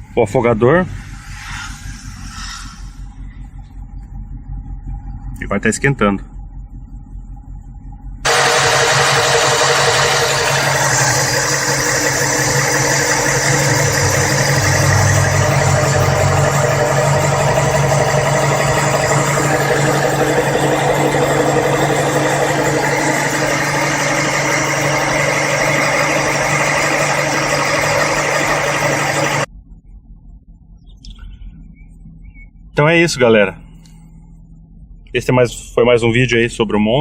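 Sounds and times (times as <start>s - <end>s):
car engine fast idle: 7.4s - 29.5s.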